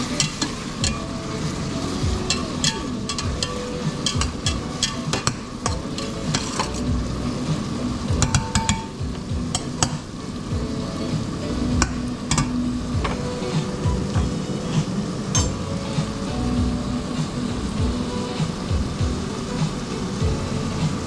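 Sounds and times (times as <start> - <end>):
utensil scraping food in pan: 0.0 - 6.9
low hum: 10.5 - 19.5.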